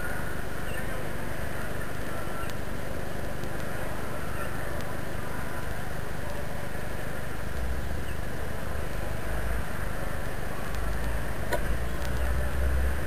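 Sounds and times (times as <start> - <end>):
urban background hiss and hum: 0.0 - 13.0.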